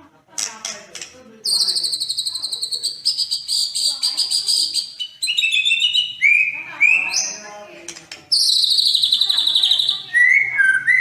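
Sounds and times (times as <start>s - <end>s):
songbird trilling: 1.4s - 7.5s, 8.3s - 11.0s.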